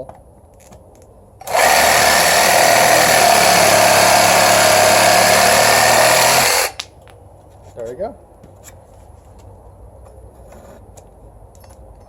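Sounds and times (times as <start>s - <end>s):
reciprocating saw cutting wood: 1.4s - 6.8s.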